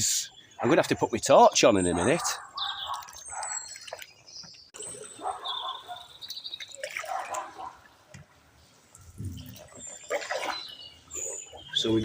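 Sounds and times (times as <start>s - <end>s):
water dripping and splashing: 2.2s - 12.0s
canoe paddles dipping into water: 6.2s - 12.0s.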